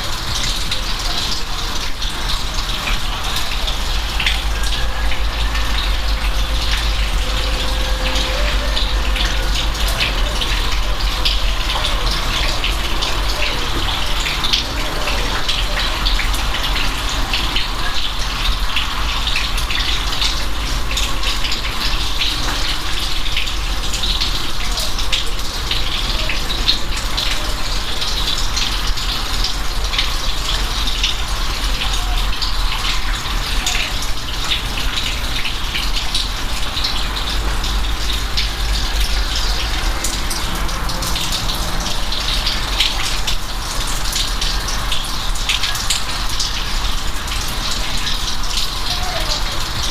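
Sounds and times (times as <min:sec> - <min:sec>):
heavy rain: 0:00.0 - 0:49.9
low rumble: 0:03.6 - 0:11.7.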